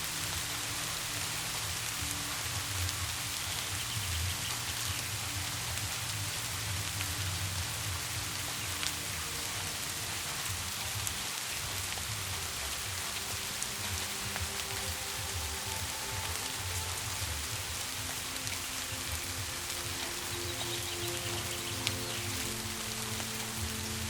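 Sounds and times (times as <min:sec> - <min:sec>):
low music drone: 0:00.0 - 0:24.0
steady rain falling: 0:00.0 - 0:24.0.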